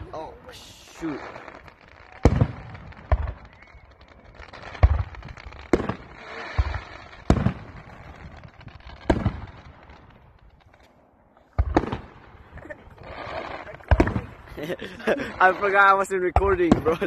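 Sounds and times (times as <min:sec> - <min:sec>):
firework shells bursting: 0:00.6 - 0:10.9.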